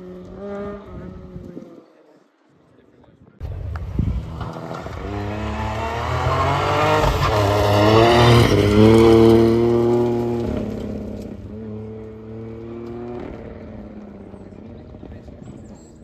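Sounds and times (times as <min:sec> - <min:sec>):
rally car engine accelerating: 0:03.4 - 0:15.8.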